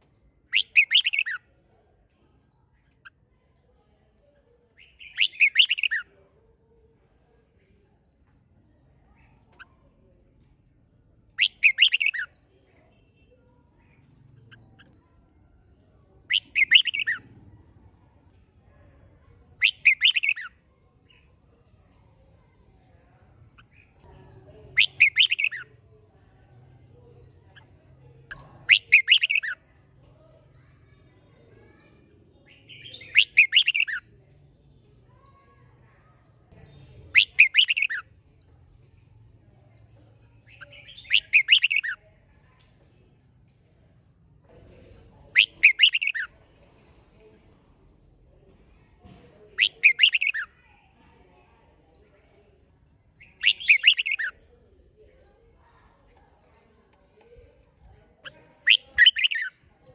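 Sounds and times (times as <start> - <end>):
faint high bird chirps: 0.3 - 6.7, 9.0 - 17.4, 19.2 - 46.4, 49.1 - 52.3, 52.9 - 59.9
bird singing warbled phrases: 0.4 - 1.5, 4.7 - 6.6, 9.1 - 13.3, 13.9 - 15.2, 16.2 - 17.3, 19.3 - 22.2, 23.5 - 42.2, 43.2 - 46.3, 49.4 - 52.1, 52.9 - 59.9.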